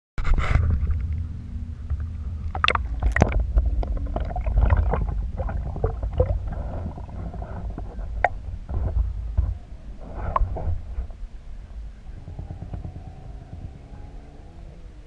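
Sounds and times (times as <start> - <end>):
muffled underwater water rumble: 0.2 - 15.0
clicks and bubbling pops: 2.5 - 8.9.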